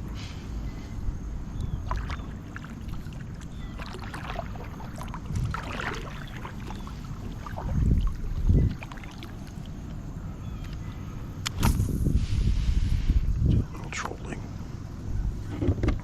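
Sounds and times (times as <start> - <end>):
water splashing along hull: 0.0 - 14.0.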